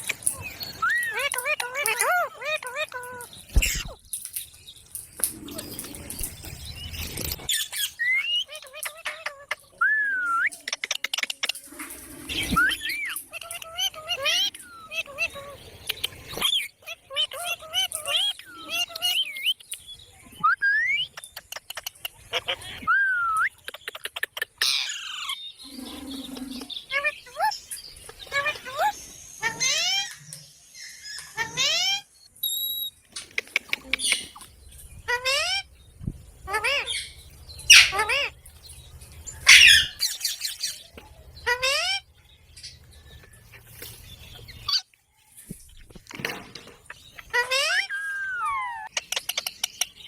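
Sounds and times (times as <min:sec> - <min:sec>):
parrot squawk: 0:00.8 - 0:04.0, 0:28.3 - 0:30.2, 0:31.3 - 0:32.0, 0:35.1 - 0:35.7, 0:36.5 - 0:38.3, 0:39.4 - 0:40.2, 0:41.4 - 0:42.0, 0:47.3 - 0:48.9
parrot chirps: 0:26.9 - 0:34.4, 0:36.5 - 0:38.4, 0:39.4 - 0:40.8, 0:41.4 - 0:42.1, 0:47.3 - 0:50.0.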